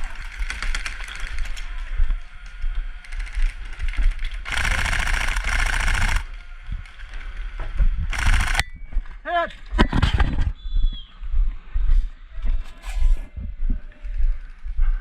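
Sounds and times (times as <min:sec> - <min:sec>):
airsoft rifle rattling burst: 0:04.4 - 0:06.3, 0:08.1 - 0:08.6
scattered clicks and knocks: 0:08.1 - 0:08.7.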